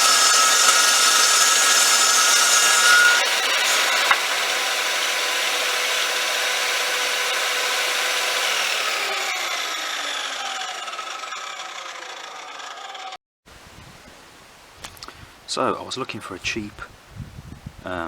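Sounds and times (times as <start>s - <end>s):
table saw running: 0.0s - 13.2s.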